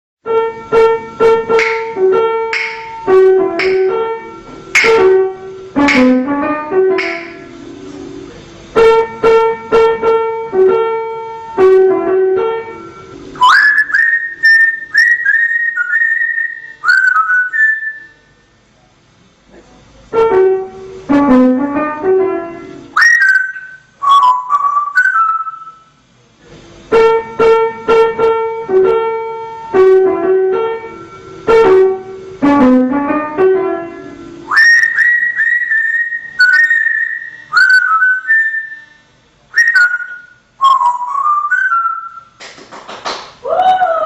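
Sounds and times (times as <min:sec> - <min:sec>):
keyboard melody: 0:00.2 - 0:18.2, 0:20.2 - 0:25.8, 0:27.0 - 0:38.9
parrot whistling: 0:13.4 - 0:18.3, 0:22.9 - 0:25.9, 0:34.5 - 0:42.4.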